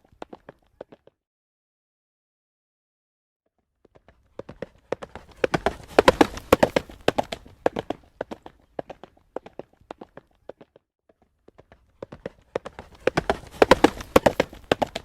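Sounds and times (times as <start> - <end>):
horse hooves clip-clopping on road: 4.0 - 10.8, 11.5 - 15.0.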